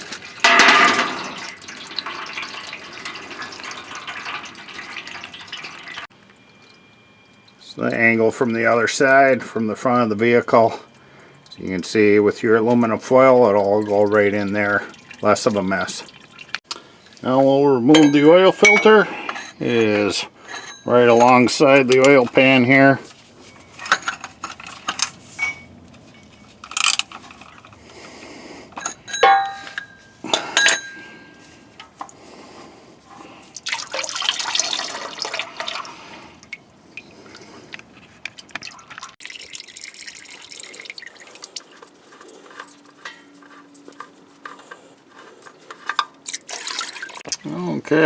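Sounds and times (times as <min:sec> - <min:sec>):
tool clinking on metal filter: 0:00.0 - 0:04.4, 0:17.8 - 0:28.0, 0:28.7 - 0:32.2, 0:38.6 - 0:47.2
oil dripping: 0:00.0 - 0:09.3, 0:10.9 - 0:20.1, 0:21.2 - 0:47.4
oil splashing into pan: 0:00.2 - 0:06.1, 0:33.6 - 0:36.6.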